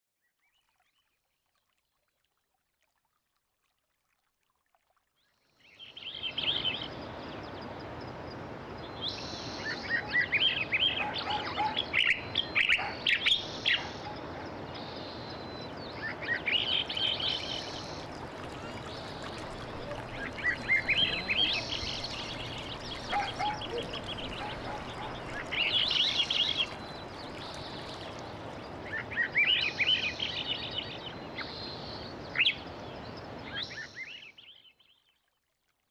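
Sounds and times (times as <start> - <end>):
songbirds singing: 5.7 - 35.0
background hiss: 13.1 - 33.5.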